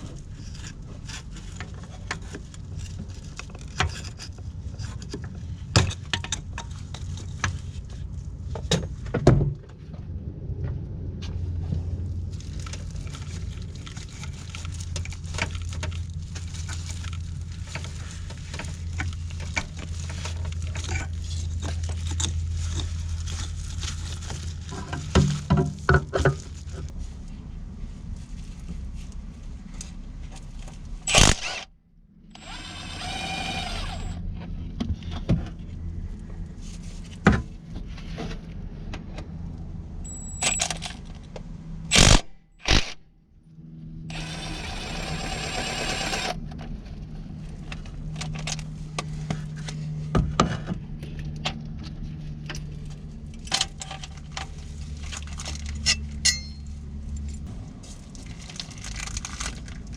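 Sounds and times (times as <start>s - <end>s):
metal tools clinking and scraping: 55.5s - 57.5s.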